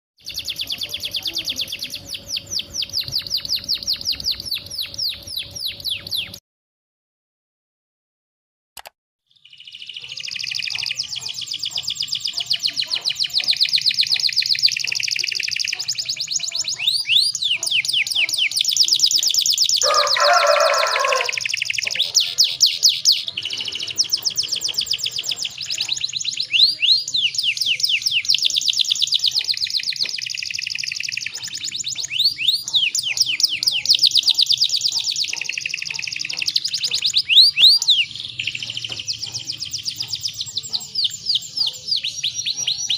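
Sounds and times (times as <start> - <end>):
canary singing trills: 0.2 - 6.4, 9.3 - 42.9.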